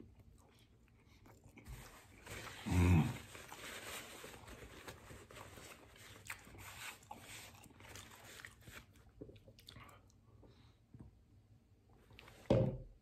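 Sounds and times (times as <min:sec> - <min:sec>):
person chewing food: 0:04.3 - 0:10.2.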